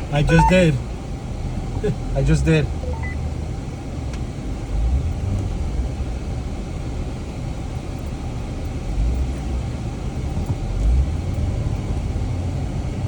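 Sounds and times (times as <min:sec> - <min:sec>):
engine rumbling under load: 0:00.0 - 0:13.0.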